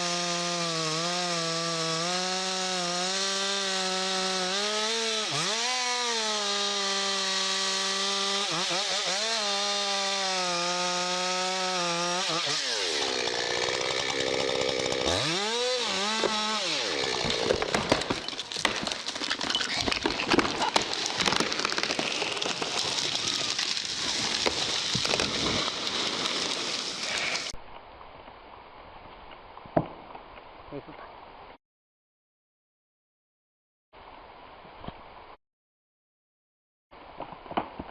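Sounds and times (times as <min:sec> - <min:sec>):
chainsaw revving: 0:00.0 - 0:19.1, 0:20.5 - 0:27.5
dense crackling and snapping: 0:17.0 - 0:27.6.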